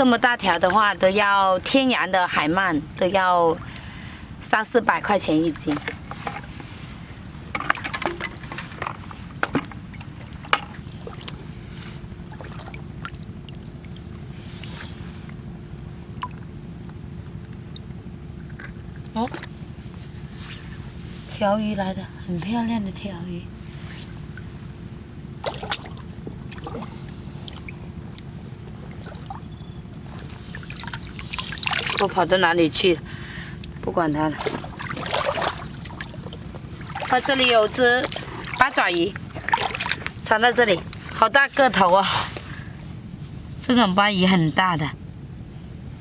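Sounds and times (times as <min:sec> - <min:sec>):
shallow water splashing: 0:00.0 - 0:21.4, 0:22.0 - 0:43.6
steady low rumble: 0:00.0 - 0:46.0
sharp splashes and clicks: 0:07.5 - 0:11.5, 0:12.3 - 0:19.5, 0:25.4 - 0:32.2, 0:33.6 - 0:41.2.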